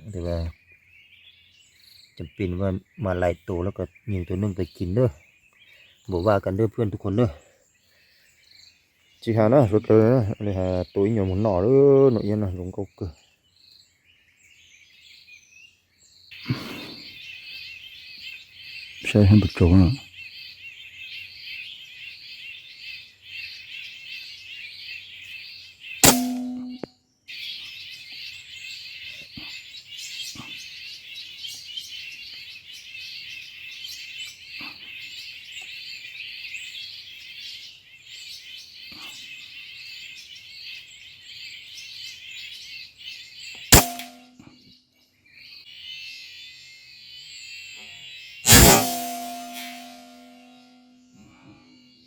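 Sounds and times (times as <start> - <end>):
flock of birds chirping: 0.0 - 52.0
sharp cracks: 26.0 - 26.9, 43.7 - 44.4, 48.5 - 50.7.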